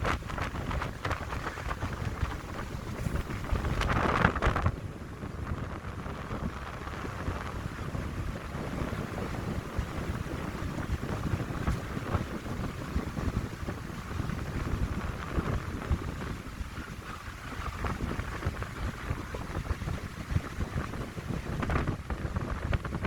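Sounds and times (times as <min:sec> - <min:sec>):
wind buffeting microphone: 0:00.0 - 0:23.0
wind rushing through pines: 0:00.0 - 0:23.0.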